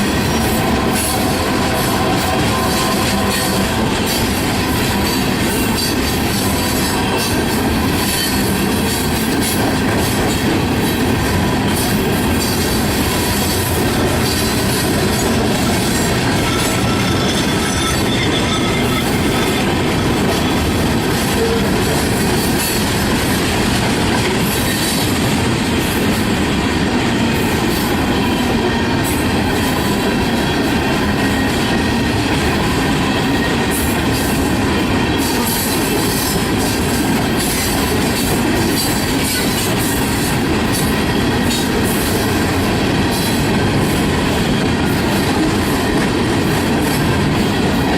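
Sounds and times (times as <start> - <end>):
train wheels clacking on rails: 0.0 - 47.9
high wheel squeal: 15.9 - 19.8.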